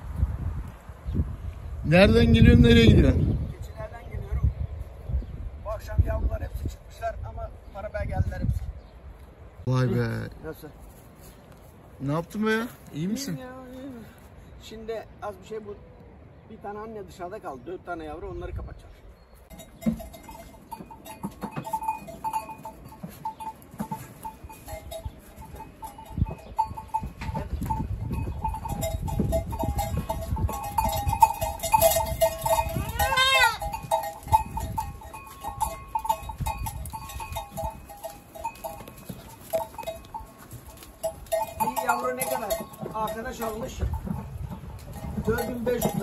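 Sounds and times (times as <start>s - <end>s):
goat bells clinking: 19.2s - 46.0s
goat bleating: 32.6s - 33.8s.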